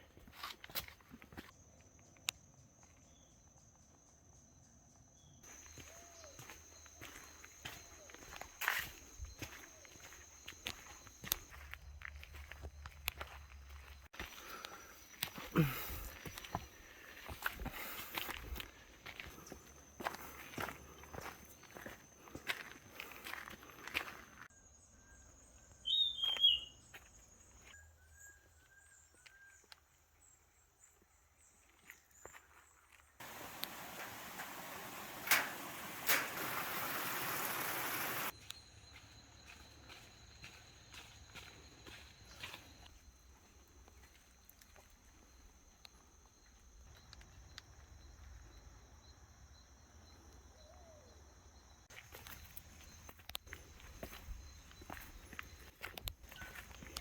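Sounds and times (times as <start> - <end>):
footsteps on a trail: 0.0 - 1.6, 5.4 - 24.5, 26.2 - 27.8, 31.0 - 48.5, 51.9 - 57.0
insects whining: 5.2 - 24.7, 33.2 - 57.0
soft whistled bird notes: 24.9 - 29.8
loud clear bird call: 25.8 - 26.8, 33.2 - 38.3
high insect chirring: 33.2 - 41.9.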